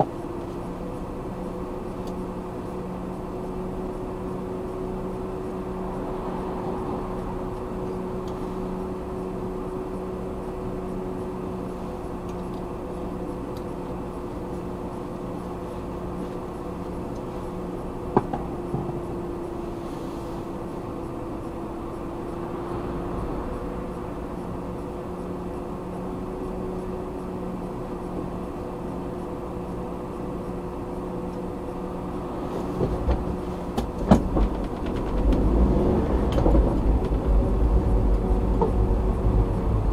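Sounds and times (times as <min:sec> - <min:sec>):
car engine running: 0:00.0 - 0:39.9
loud rumble: 0:32.1 - 0:39.9.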